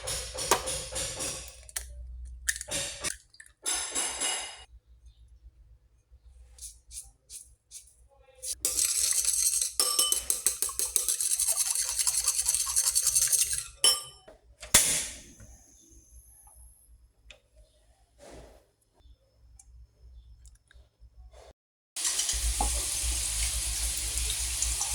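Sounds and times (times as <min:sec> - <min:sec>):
utensils and dishes clinking: 0:02.5 - 0:04.7, 0:08.5 - 0:15.2.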